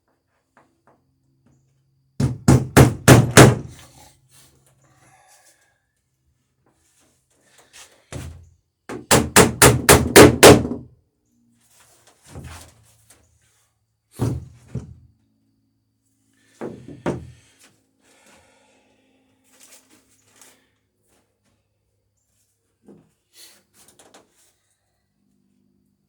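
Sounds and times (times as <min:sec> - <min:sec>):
hammer blows on rivets: 0:02.2 - 0:03.9, 0:08.9 - 0:10.8.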